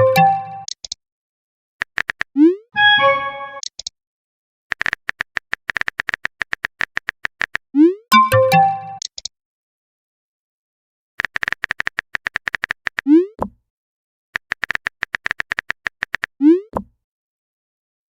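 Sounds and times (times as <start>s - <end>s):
phone keyboard typing clicks: 1.8s - 2.3s, 11.2s - 13.0s, 14.4s - 16.3s.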